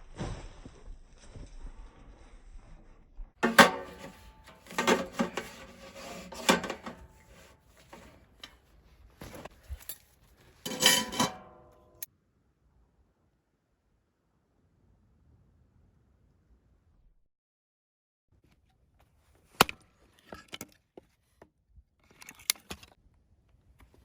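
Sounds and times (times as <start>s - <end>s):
metal cookware clanking: 3.4s - 8.6s, 10.6s - 12.1s.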